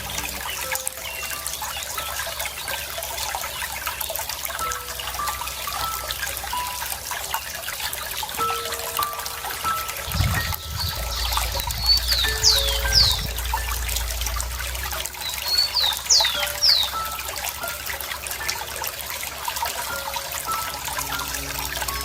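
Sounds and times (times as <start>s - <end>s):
water trickling: 0.0s - 22.0s
bird whistling: 10.1s - 13.4s, 15.4s - 17.2s.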